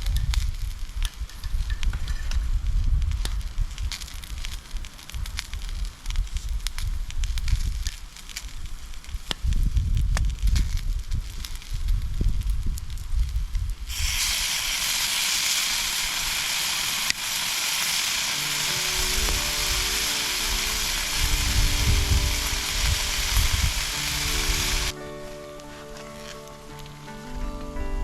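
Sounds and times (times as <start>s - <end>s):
food sizzling on a grill: 0.0s - 27.5s
background music: 17.9s - 28.0s.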